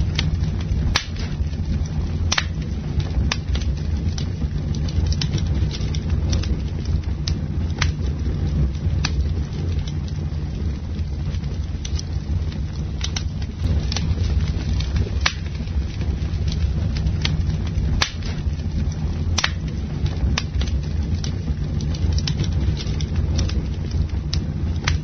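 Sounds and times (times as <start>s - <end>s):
campfire rumbling: 0.0s - 25.0s
wood crackling and popping: 0.0s - 25.0s.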